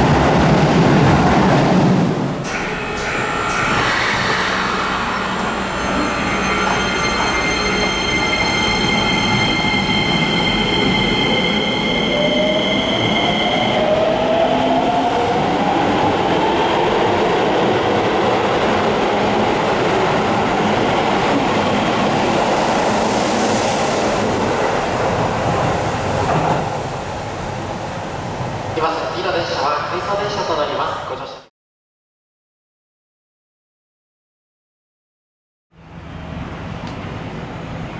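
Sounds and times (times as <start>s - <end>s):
train wheel and running noise: 35.9s - 37.9s.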